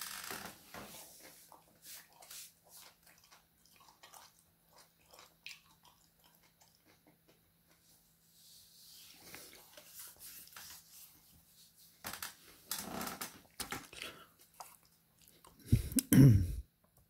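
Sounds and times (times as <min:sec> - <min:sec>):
close chewing: 0:01.5 - 0:07.2, 0:13.8 - 0:16.0.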